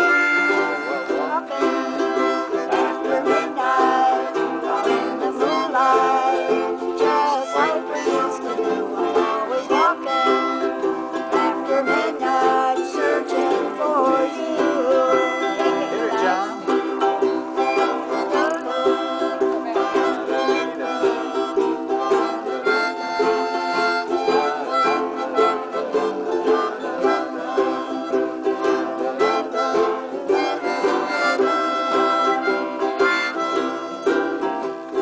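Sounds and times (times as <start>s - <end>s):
harmonica playing melody: 0.0s - 35.0s
ukuleles strumming: 0.0s - 35.0s.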